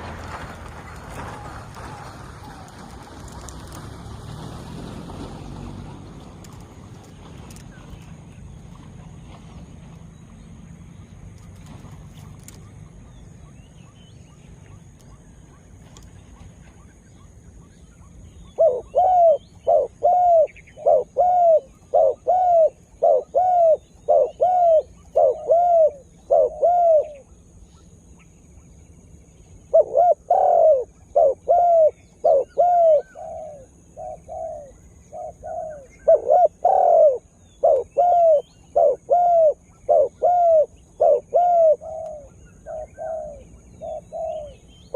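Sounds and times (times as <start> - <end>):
dove cooing: 18.5 - 27.3, 29.7 - 44.7.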